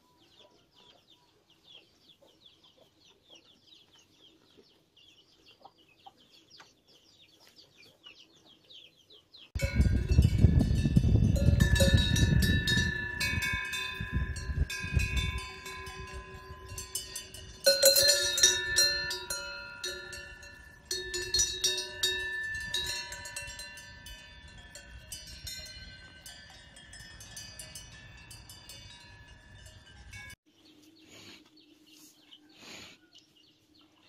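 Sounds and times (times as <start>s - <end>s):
cowbells clanking: 9.6s - 30.4s.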